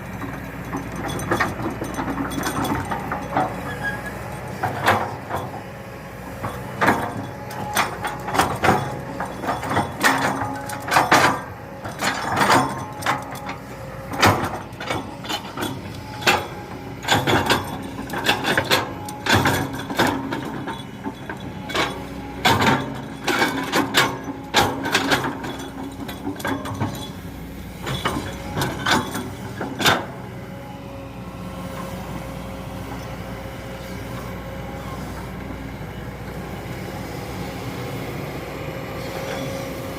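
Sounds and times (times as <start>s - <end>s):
diesel excavator engine running: 0.0s - 39.9s
metallic clanks and scrapes: 6.4s - 30.2s.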